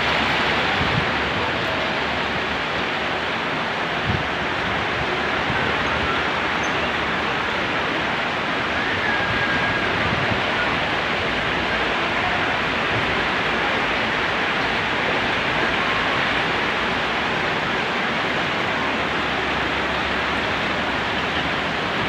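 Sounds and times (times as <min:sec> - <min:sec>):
rain pouring: 0:00.0 - 0:22.0.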